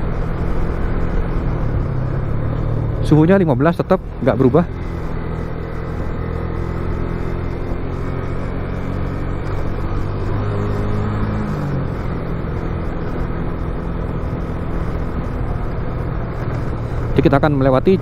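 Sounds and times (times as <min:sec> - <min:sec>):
motorcycle engine cruising: 0:00.0 - 0:18.0
road and wind noise: 0:00.0 - 0:18.0.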